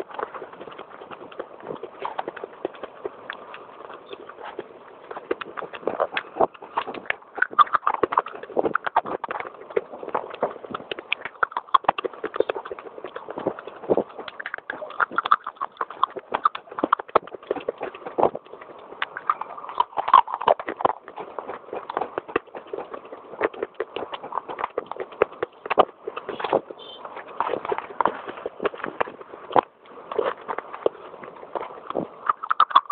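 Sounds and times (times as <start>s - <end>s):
crunching and chewing clay: 0.0s - 32.9s.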